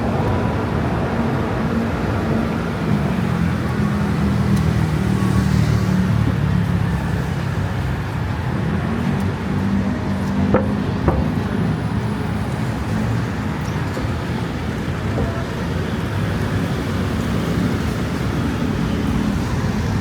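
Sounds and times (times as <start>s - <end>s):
passing vehicles rumbling: 0.0s - 20.0s.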